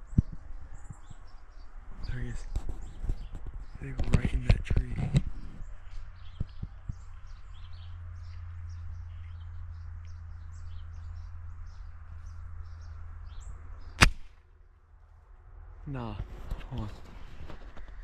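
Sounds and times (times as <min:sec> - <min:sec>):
starlings chirping: 0:00.0 - 0:14.4
steady low hum: 0:00.0 - 0:18.0
sharp loud snap: 0:14.0 - 0:14.4.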